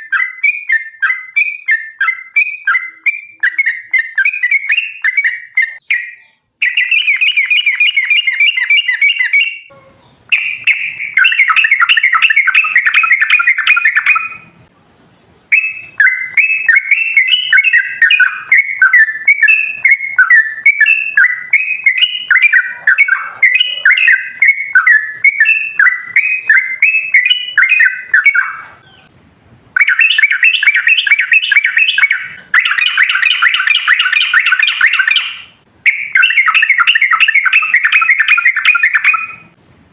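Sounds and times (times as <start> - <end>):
bird singing chattering phrases: 0.0 - 29.1.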